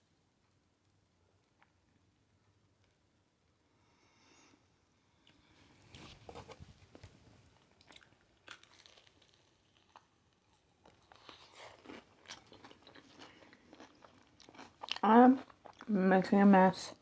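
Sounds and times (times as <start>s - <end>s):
crunchy chewing: 6.3s - 15.9s.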